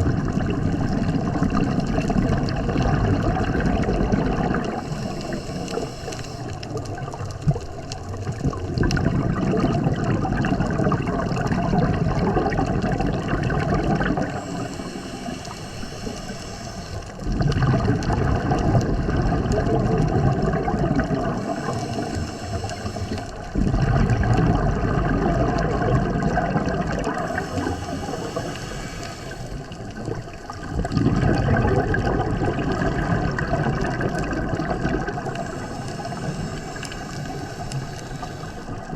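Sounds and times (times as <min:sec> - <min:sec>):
exhaled bubbles gurgling underwater: 0:00.0 - 0:38.9
hissing regulator inhale: 0:01.5 - 0:06.8, 0:13.9 - 0:17.4, 0:21.1 - 0:23.7, 0:26.9 - 0:30.8, 0:35.1 - 0:38.9.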